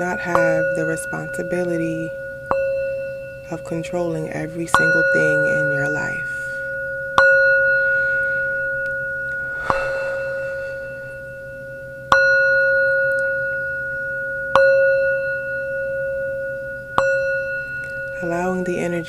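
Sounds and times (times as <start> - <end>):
singing bowl ringing: 0.0 - 19.0
faint hiss: 9.3 - 11.7.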